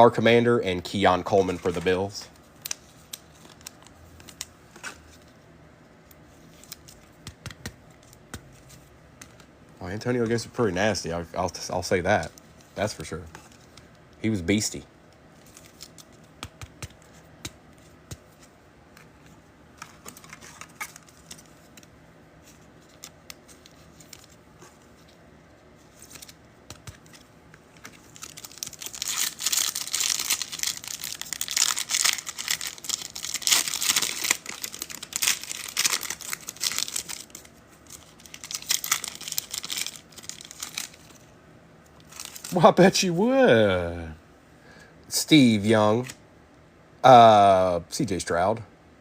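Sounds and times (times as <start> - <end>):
foil wrappers tearing and crinkling: 27.8 - 41.2, 42.0 - 42.7.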